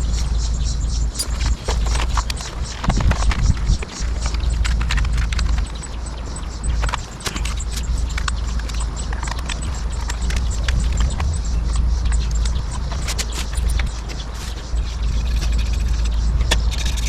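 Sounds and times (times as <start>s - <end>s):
steady low rumble: 0.0s - 17.0s
hand tool clicks and knocks: 1.2s - 14.4s.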